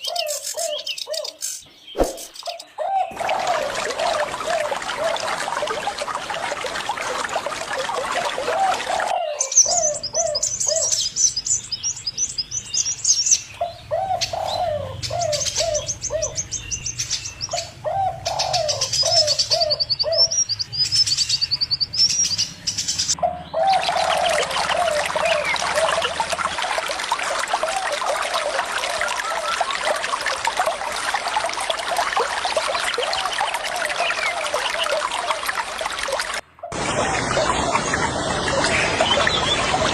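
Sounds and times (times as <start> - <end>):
running water: 2.0 - 39.9
doves cooing: 2.1 - 10.9, 13.6 - 16.4, 17.5 - 20.3, 23.2 - 37.7.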